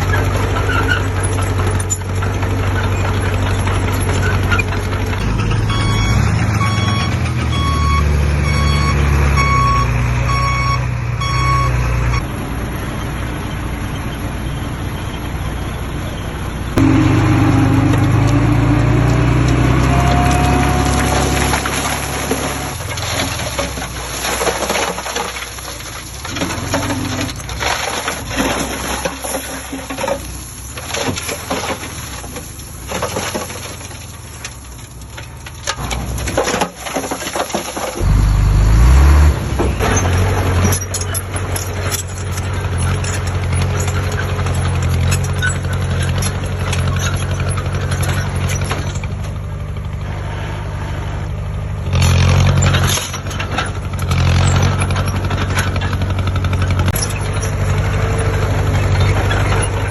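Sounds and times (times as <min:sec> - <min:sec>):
diesel engine running: 0:00.0 - 0:31.0, 0:37.0 - 0:59.9
rattle: 0:16.8 - 0:38.3, 0:39.8 - 0:49.4, 0:52.0 - 0:59.9.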